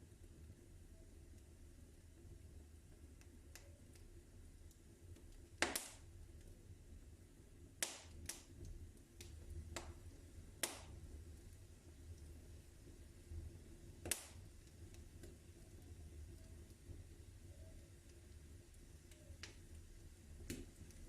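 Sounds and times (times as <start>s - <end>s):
wood fire crackling: 0.0s - 21.0s
fire pops: 3.1s - 6.5s, 7.7s - 21.0s.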